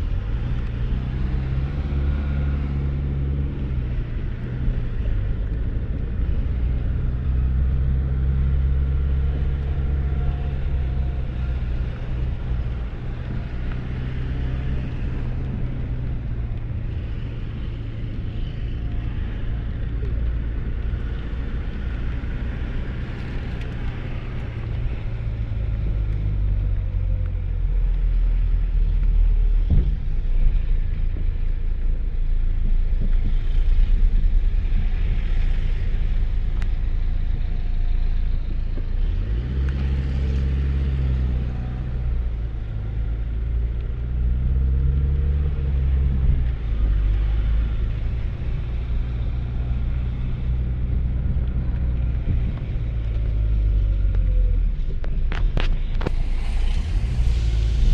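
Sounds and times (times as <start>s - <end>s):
vehicle engine hum: 0.0s - 57.9s
rain hiss: 55.7s - 57.9s.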